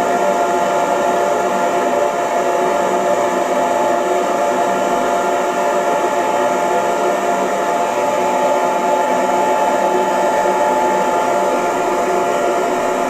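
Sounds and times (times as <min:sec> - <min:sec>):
hair dryer running: 0:00.0 - 0:13.0.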